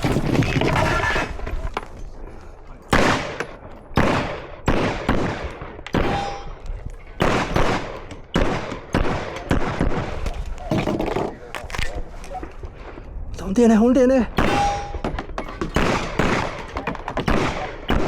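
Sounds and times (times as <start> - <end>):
gunshots with ringing echo: 2.9 - 10.2, 14.3 - 18.0.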